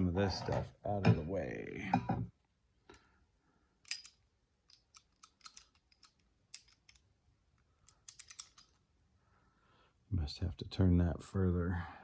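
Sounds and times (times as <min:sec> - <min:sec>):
small metal tools clicking: 0:03.8 - 0:07.1, 0:07.8 - 0:08.8.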